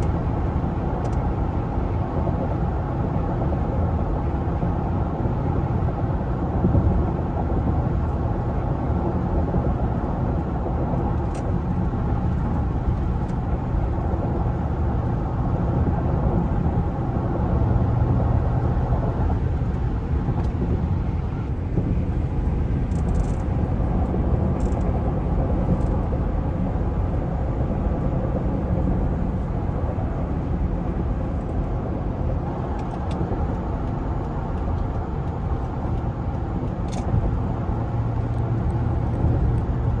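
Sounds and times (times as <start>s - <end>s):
road noise: 0.0s - 40.0s
car engine: 9.6s - 26.3s.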